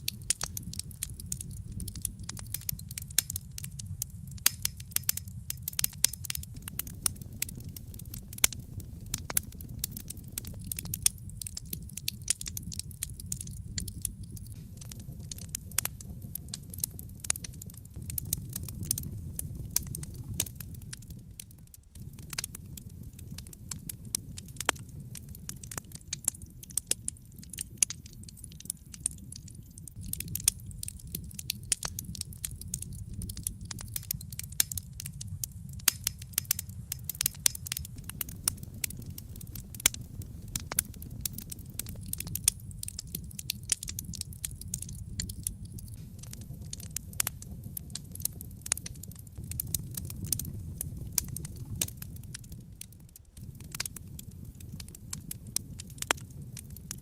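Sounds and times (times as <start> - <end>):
low rumble of burning: 0.0 - 57.0
wood fire popping and snapping: 0.0 - 57.0.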